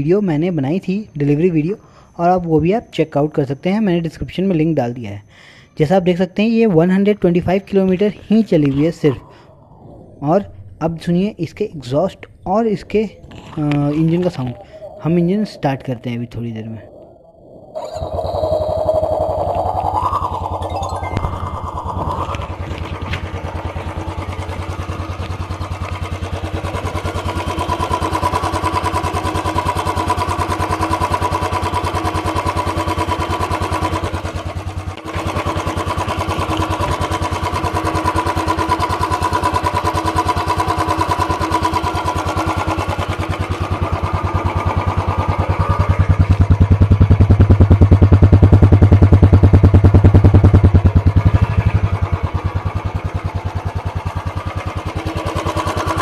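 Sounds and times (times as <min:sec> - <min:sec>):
motorcycle engine running: 0:18.8 - 0:56.0.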